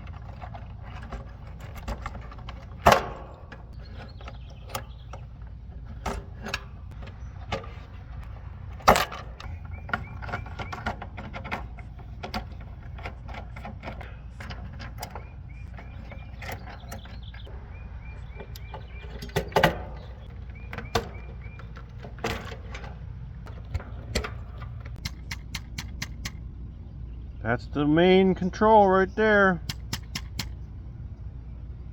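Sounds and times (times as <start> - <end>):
wires and connectors rattling: 0.0 - 17.5, 18.1 - 25.9.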